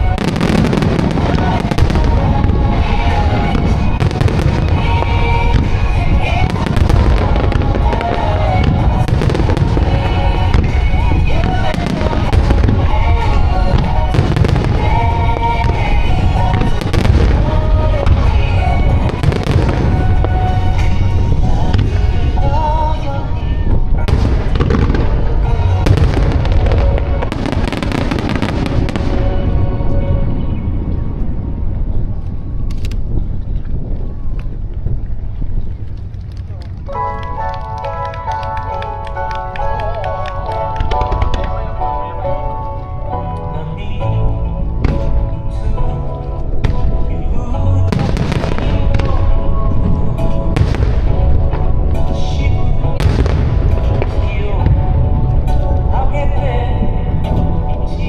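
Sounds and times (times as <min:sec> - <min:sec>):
pop song over loudspeakers: 0:00.0 - 0:31.4, 0:36.9 - 0:58.0
fireworks bangs and crackling: 0:00.0 - 0:43.0, 0:44.8 - 0:58.0.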